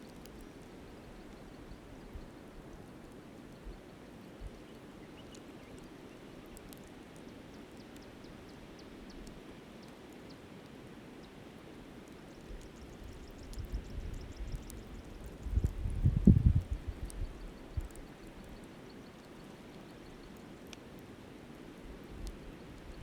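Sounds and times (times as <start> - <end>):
faint campfire crackles: 0.0 - 23.0
wind buffeting microphone: 12.8 - 17.9.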